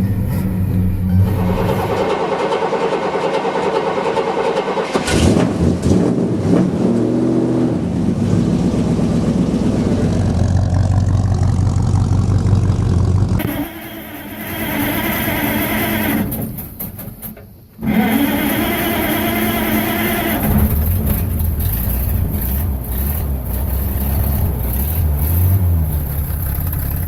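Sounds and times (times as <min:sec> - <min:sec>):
old vehicle engine revving and idling: 0:00.0 - 0:17.1, 0:17.8 - 0:27.0.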